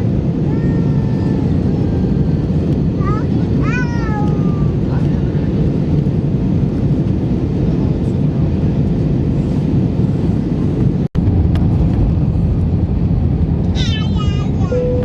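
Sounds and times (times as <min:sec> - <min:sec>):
airplane cabin rumble in flight: 0:00.0 - 0:15.0.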